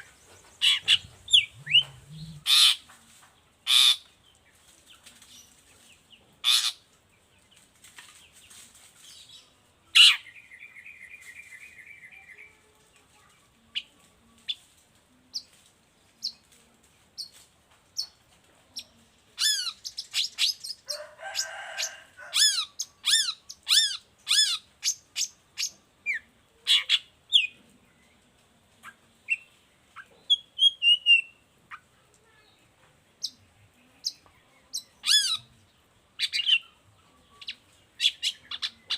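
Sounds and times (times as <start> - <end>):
shrike singing: 0.6 - 2.8.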